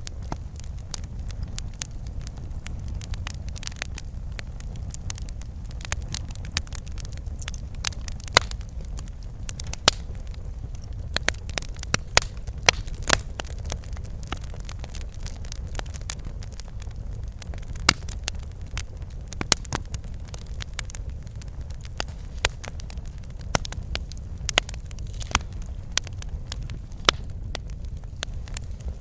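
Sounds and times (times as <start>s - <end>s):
steady low rumble: 0.0s - 29.0s
wood fire crackling and popping: 0.0s - 29.0s.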